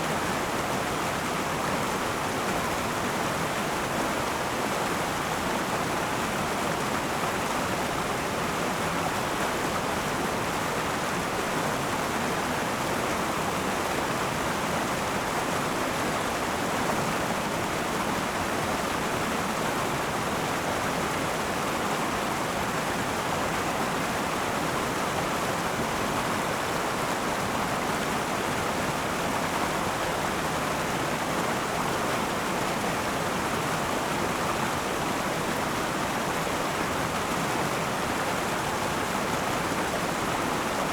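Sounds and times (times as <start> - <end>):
river water rushing over stones: 0.0 - 40.9.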